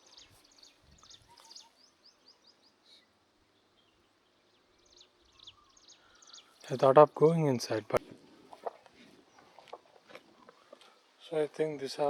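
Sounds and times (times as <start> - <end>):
faint bird chirps: 0.0 - 7.0.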